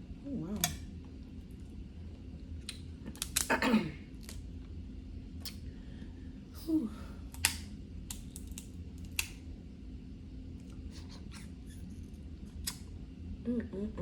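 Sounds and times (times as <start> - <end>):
crab shells cracking: 2.6 - 3.5, 7.3 - 9.4
small shell clicks: 7.3 - 9.4.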